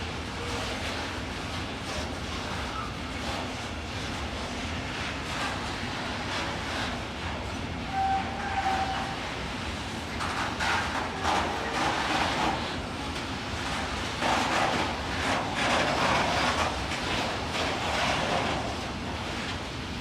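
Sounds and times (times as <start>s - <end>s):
train wheels rumbling and clattering: 0.0s - 20.0s
wheel squeal on rail: 2.5s - 3.5s, 7.5s - 9.4s, 10.2s - 12.6s.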